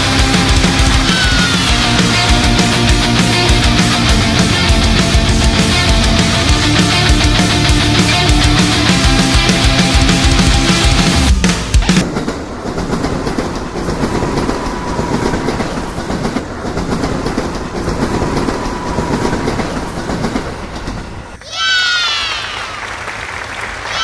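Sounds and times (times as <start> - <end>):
loud high falling call: 0.0 - 11.2, 20.8 - 24.0
train rumbling on track: 0.0 - 24.0.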